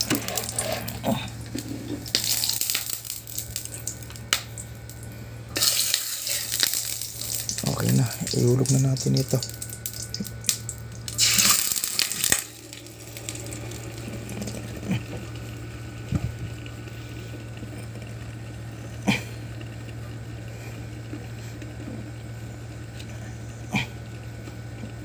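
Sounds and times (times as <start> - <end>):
food sizzling in hot oil: 0.0 - 1.0, 1.6 - 14.8.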